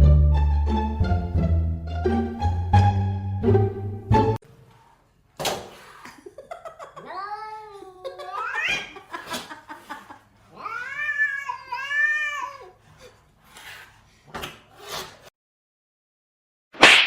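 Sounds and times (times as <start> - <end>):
cat meowing: 7.0 - 9.0, 10.5 - 12.8.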